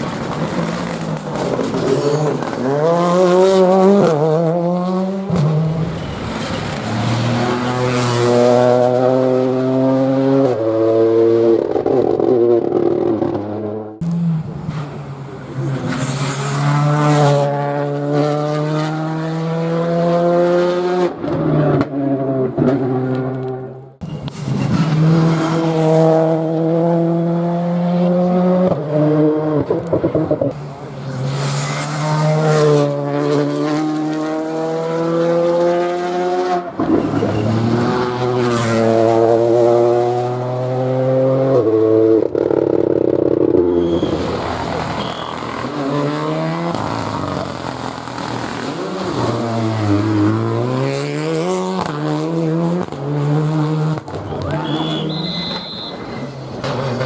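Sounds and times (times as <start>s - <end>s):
rally car engines revving: 0.0s - 57.0s
tyre squeal: 43.6s - 44.4s, 45.0s - 45.6s, 54.3s - 56.4s.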